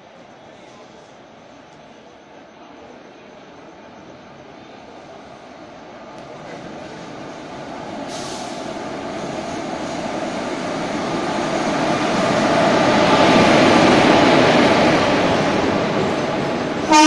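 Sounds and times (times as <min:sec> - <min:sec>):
train passing on rails: 0:00.0 - 0:17.0
high hiss: 0:08.0 - 0:08.8.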